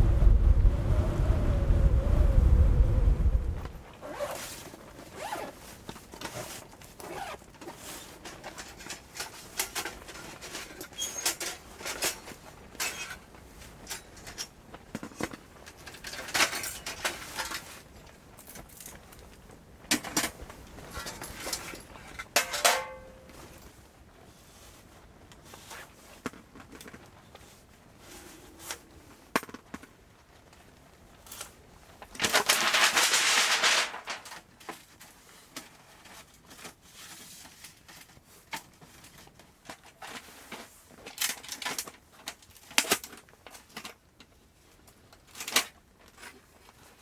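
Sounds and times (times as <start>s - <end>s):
rustling: 0.0s - 19.6s, 30.1s - 42.2s
clicks and light knocks: 13.8s - 23.5s.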